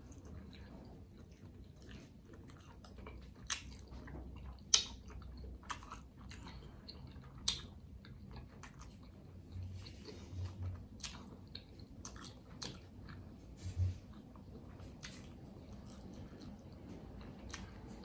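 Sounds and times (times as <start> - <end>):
person chewing wetly: 0.0 - 18.0
lip smacks: 4.6 - 9.1.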